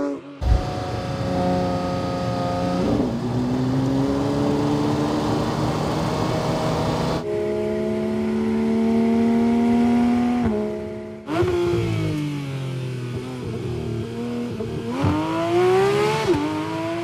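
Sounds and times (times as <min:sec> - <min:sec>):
car engine accelerating: 0:00.4 - 0:12.4.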